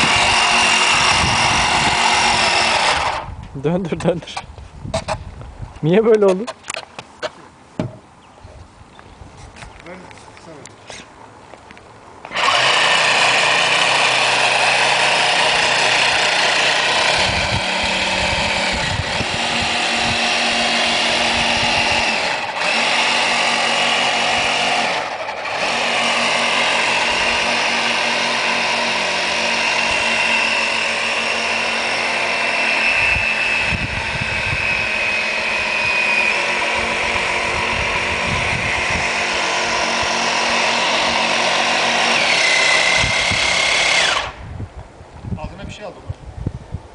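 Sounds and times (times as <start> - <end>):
electric motor whining: 0.0 - 3.5, 12.3 - 44.5.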